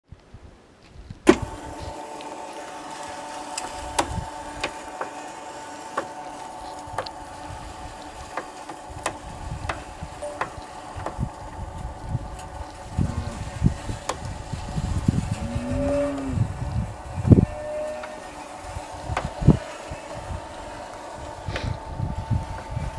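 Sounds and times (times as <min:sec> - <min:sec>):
electric motor humming: 0:01.3 - 0:22.9
motor switch click: 0:03.4 - 0:05.2.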